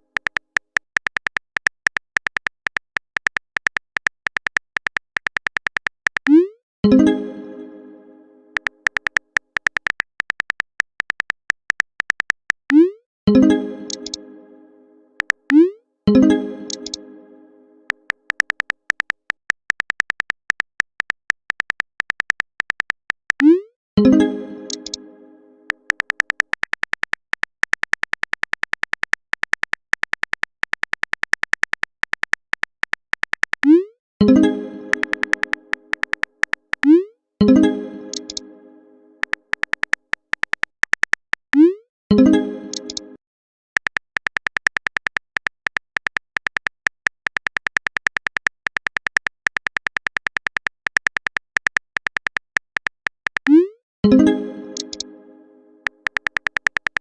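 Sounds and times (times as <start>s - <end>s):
typing clicks: 0.0s - 6.5s, 8.6s - 12.9s, 13.9s - 14.2s, 15.2s - 15.7s, 16.7s - 17.0s, 17.9s - 23.6s, 24.7s - 25.0s, 25.7s - 33.9s, 34.9s - 37.1s, 38.1s - 38.4s, 39.2s - 41.7s, 42.7s - 43.0s, 43.8s - 54.2s, 54.8s - 55.1s, 55.8s - 57.0s.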